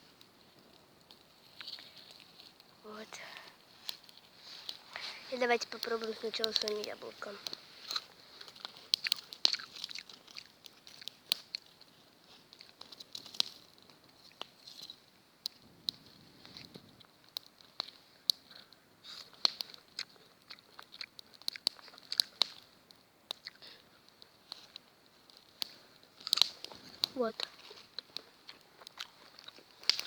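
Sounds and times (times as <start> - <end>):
person chewing crisp apple: 7.5 - 11.9, 19.1 - 22.4, 23.4 - 23.6, 26.2 - 30.0.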